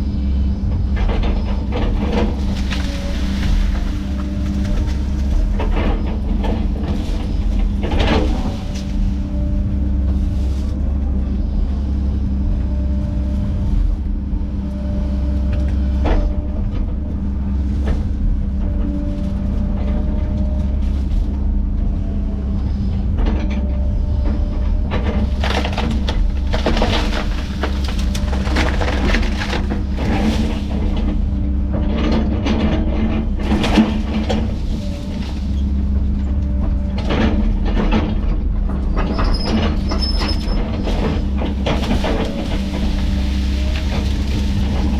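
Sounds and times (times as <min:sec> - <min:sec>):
diesel engine under load: 0:00.0 - 0:44.9
wood cracking and splintering: 0:01.1 - 0:10.8, 0:24.9 - 0:38.2, 0:39.0 - 0:44.9.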